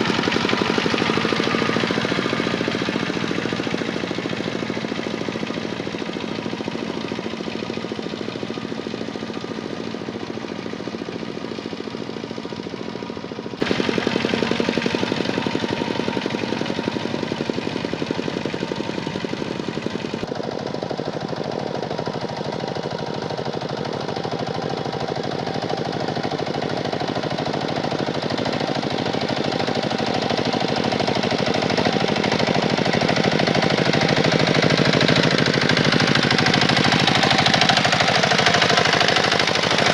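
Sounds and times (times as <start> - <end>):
tractor diesel engine chugging: 0.0 - 39.9.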